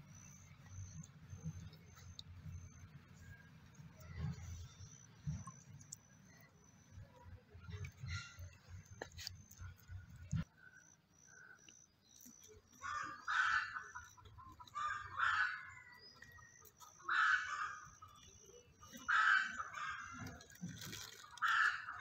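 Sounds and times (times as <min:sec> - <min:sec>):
harsh cawing bird calls: 0:12.8 - 0:14.1, 0:14.7 - 0:16.0, 0:17.0 - 0:18.4, 0:19.0 - 0:20.3, 0:21.4 - 0:22.0.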